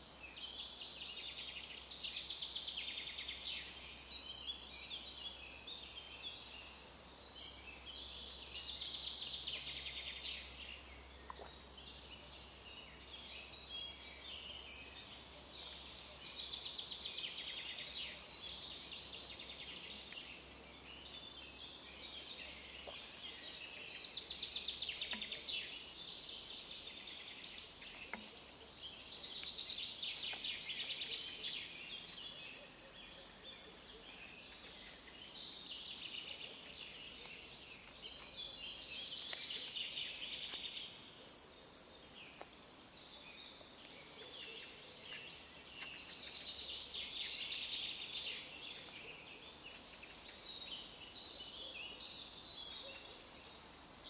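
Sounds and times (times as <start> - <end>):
small songbirds trilling: 0.0 - 54.0.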